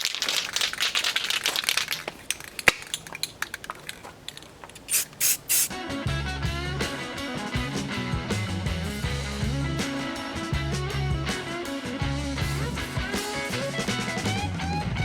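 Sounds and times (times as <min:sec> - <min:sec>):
aerosol can spraying: 0:04.8 - 0:05.8
rock music with guitar: 0:05.7 - 0:15.0.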